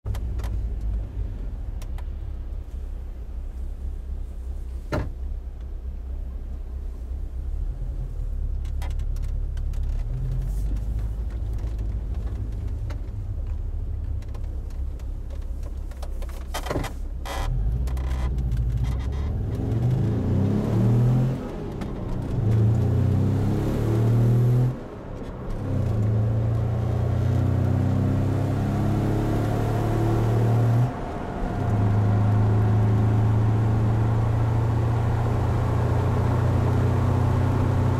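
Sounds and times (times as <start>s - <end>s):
van engine revving: 16.4s - 37.9s.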